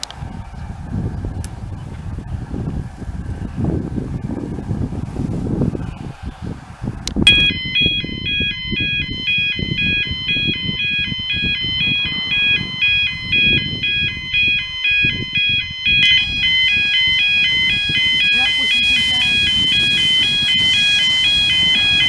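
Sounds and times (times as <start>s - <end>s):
low rumble: 6.9s - 22.0s
electronic beep tune: 7.3s - 22.0s.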